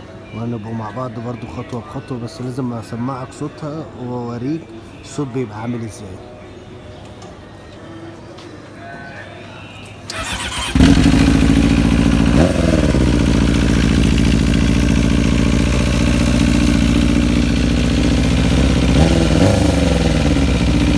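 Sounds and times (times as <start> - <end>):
motorcycle engine idling and revving: 10.1 - 20.9.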